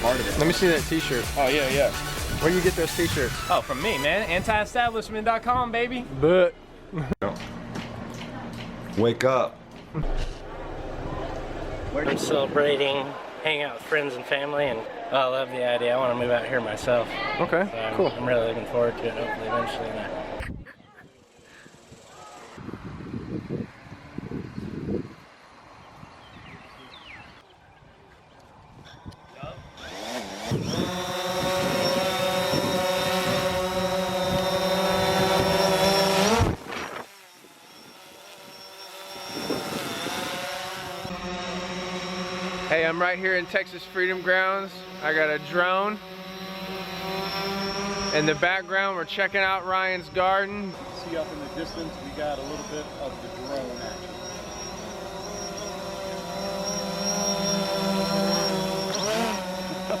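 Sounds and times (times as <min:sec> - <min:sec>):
drone propellers whining: 0:00.0 - 0:04.9, 0:10.0 - 0:13.4, 0:29.1 - 1:00.0.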